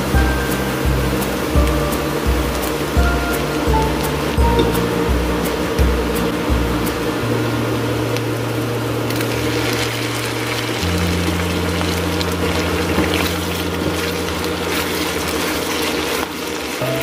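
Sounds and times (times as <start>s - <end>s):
low steady hum: 0.0s - 17.0s
meat sizzling in a wok: 8.9s - 17.0s
spatulas turning food: 9.1s - 17.0s.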